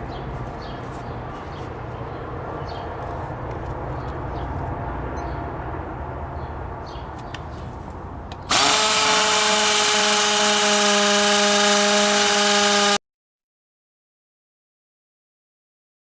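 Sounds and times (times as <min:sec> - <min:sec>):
hammer drill boring into concrete: 0:08.5 - 0:13.0.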